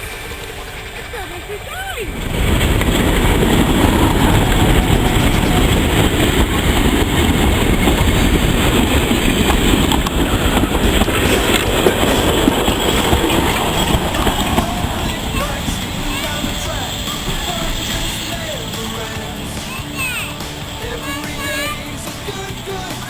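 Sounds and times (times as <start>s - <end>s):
train rumbling along track: 0.0s - 23.0s
wheels clacking over rail joints: 0.0s - 23.0s.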